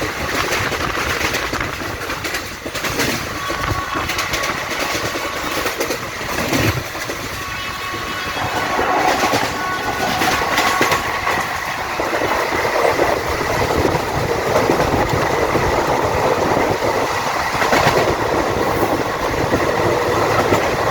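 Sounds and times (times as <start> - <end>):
train wheels clattering on rails: 0.0 - 20.9.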